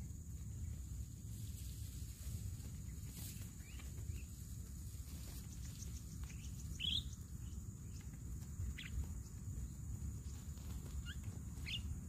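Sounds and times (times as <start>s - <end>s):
high bird chirps: 5.5s - 8.0s, 11.0s - 11.9s.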